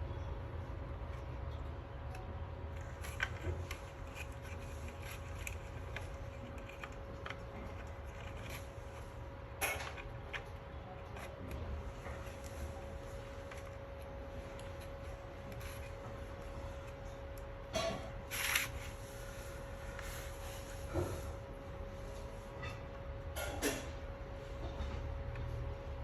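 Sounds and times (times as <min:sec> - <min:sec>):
steady electrical hum: 0:00.0 - 0:26.0
small tools clicking and scraping: 0:01.1 - 0:12.6, 0:13.4 - 0:19.0.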